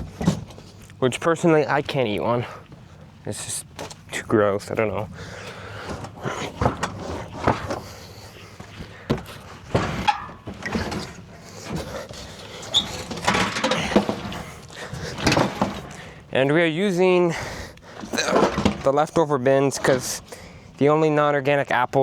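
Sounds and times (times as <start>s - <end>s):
machinery rattling: 4.2s - 20.4s
knocks and clatters: 4.8s - 8.0s, 8.6s - 16.2s.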